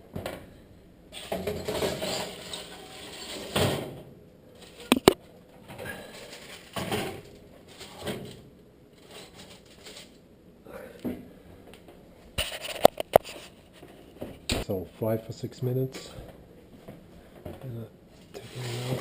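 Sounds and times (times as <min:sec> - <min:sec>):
kitchen clatter: 0:01.1 - 0:03.9.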